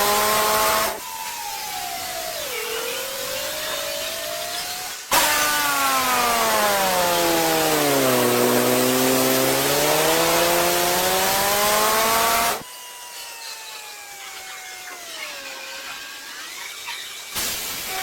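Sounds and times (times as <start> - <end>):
motor whine: 0.0 - 17.4
car wash spraying hiss: 17.4 - 18.0.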